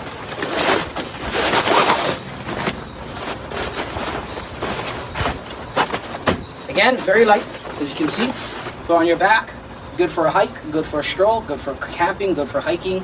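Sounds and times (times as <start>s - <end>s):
fabric bag rustling and scraping: 0.0s - 9.0s.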